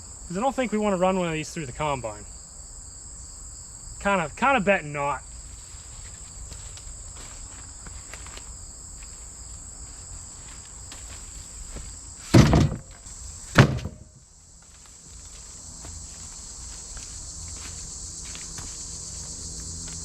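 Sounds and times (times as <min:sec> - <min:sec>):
insect chirring: 0:00.0 - 0:20.0
heavy wooden thuds: 0:12.3 - 0:14.2.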